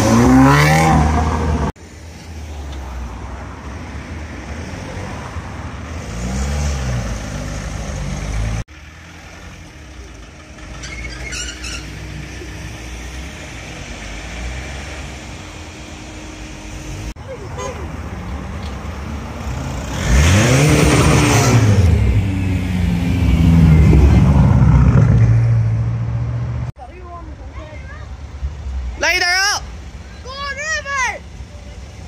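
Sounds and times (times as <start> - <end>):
car engine revving: 0.0 - 1.8, 19.2 - 26.7
quiet car engines: 0.0 - 32.0.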